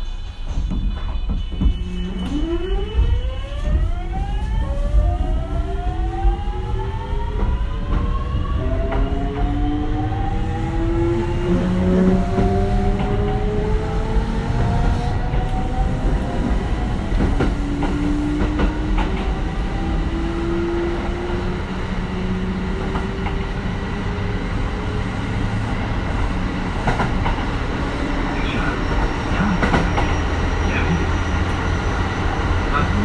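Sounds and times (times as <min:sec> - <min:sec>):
wheels rumbling on rail: 0:00.0 - 0:33.0
rail joint clicks: 0:10.8 - 0:33.0.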